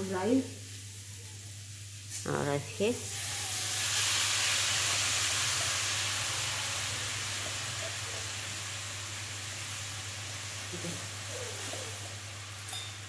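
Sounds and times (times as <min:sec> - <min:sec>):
rice sizzling in hot oil: 0:00.0 - 0:13.0.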